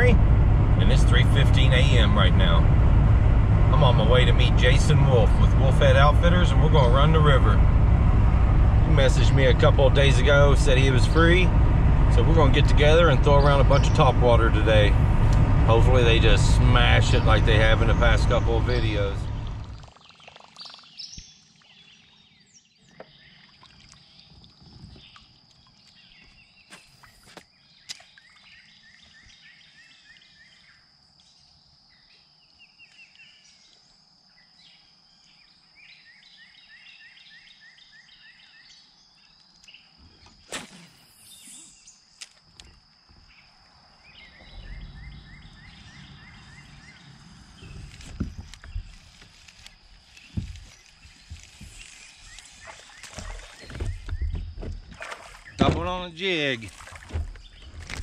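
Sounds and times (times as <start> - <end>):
low rumble: 0.0 - 19.9, 44.1 - 54.8
steady high-pitched whine: 0.0 - 20.0
songbird singing: 0.0 - 58.0
sharp knocks on kayak: 52.6 - 55.9.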